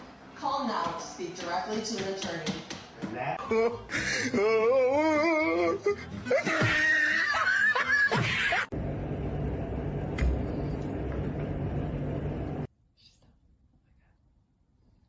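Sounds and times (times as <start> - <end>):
person laughing: 3.5 - 8.7.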